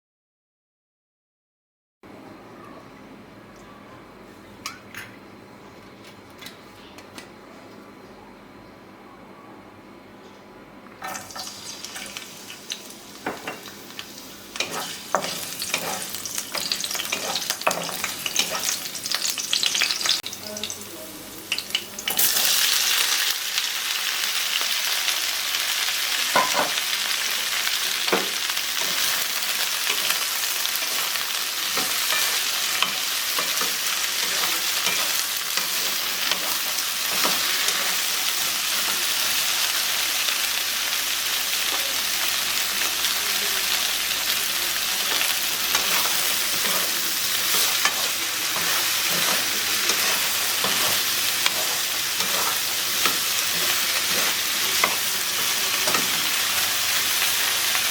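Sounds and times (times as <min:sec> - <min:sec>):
okra sizzling in hot oil: 0:11.1 - 0:20.8, 0:21.4 - 0:57.9.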